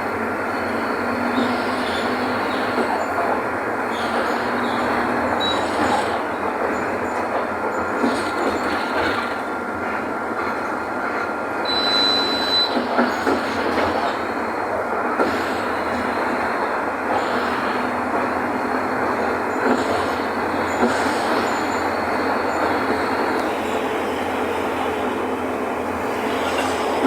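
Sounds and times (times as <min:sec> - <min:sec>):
bus diesel engine rumbling: 0:00.0 - 0:27.0
road noise: 0:00.0 - 0:27.0
brief high squeal: 0:05.4 - 0:06.2.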